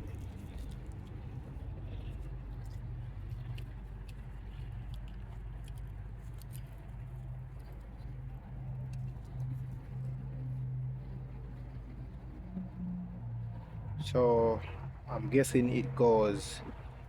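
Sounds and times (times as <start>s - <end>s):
engine parts clicking and tapping: 0.0s - 12.8s
steady low hum: 0.0s - 17.0s.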